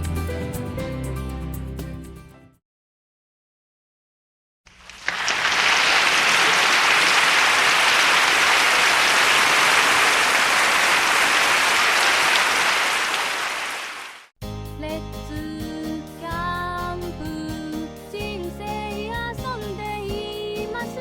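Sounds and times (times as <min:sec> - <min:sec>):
crowd clapping: 0:04.7 - 0:14.3.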